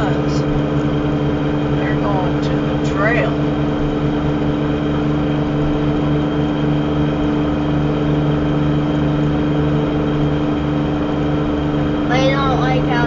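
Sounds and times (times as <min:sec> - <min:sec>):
car engine hum: 0:00.0 - 0:13.0
road noise: 0:00.0 - 0:13.0.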